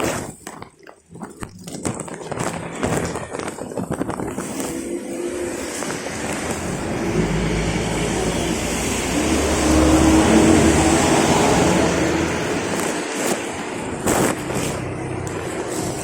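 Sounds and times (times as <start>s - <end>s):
vehicle engine running: 4.4s - 16.0s.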